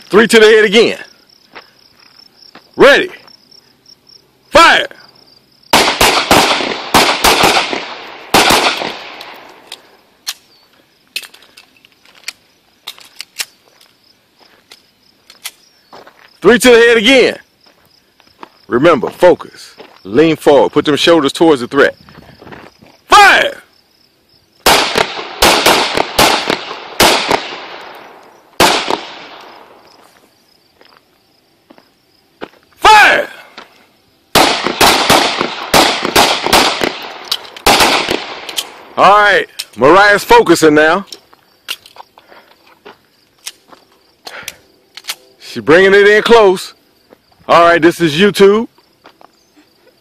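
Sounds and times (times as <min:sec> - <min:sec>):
handgun shots with echo: 0:05.8 - 0:09.6, 0:24.7 - 0:29.7, 0:34.4 - 0:38.8.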